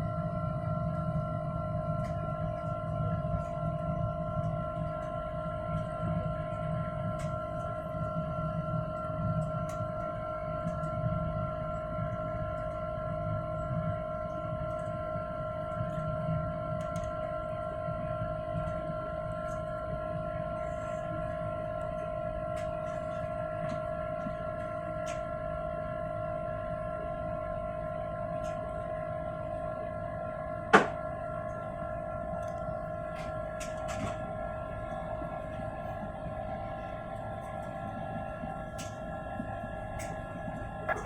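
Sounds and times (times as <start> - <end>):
whine of steady tones: 0.0 - 41.0
jet engines droning: 32.4 - 41.0.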